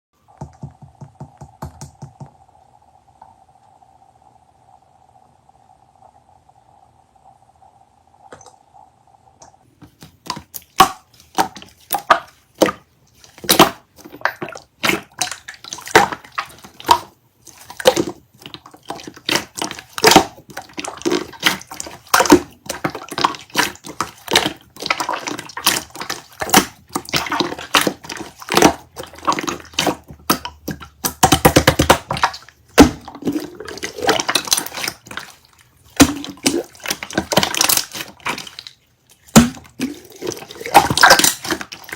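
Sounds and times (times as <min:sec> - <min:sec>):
slime squished by hand: 0:10.1 - 0:41.9.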